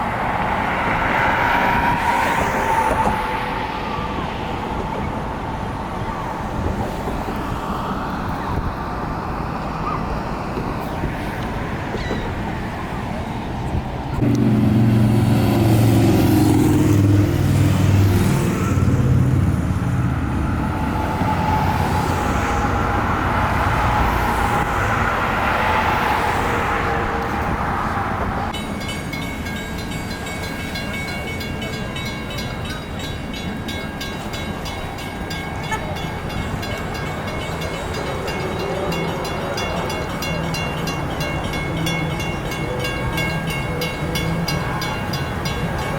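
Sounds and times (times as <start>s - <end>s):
large engine droning: 0.0s - 45.9s.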